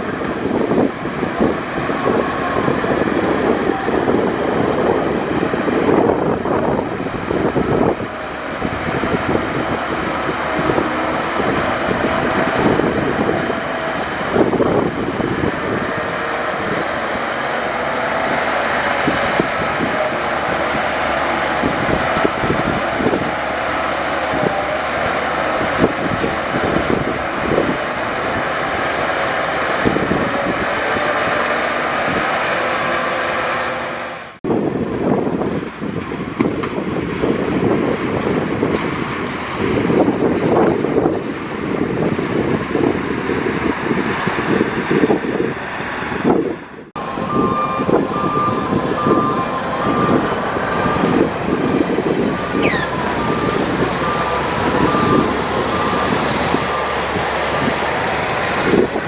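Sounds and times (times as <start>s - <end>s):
diesel machinery engine running: 0.0s - 59.0s
whining tones: 47.0s - 59.0s.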